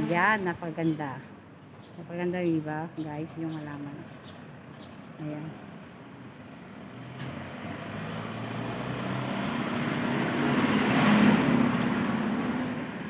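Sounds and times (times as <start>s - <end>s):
vehicle engine passing by: 6.7s - 13.0s.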